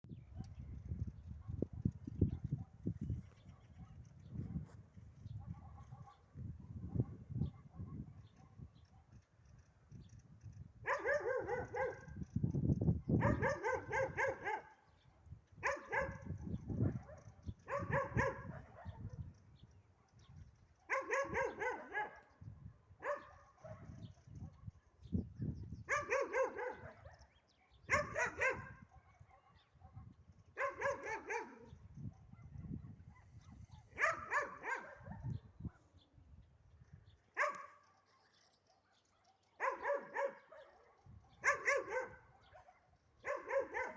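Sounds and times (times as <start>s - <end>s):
dog barking: 2.3s - 2.8s, 5.4s - 9.2s, 10.8s - 12.2s, 13.0s - 14.8s, 15.6s - 19.2s, 20.0s - 22.4s, 23.0s - 24.9s, 25.9s - 36.0s, 37.4s - 43.9s.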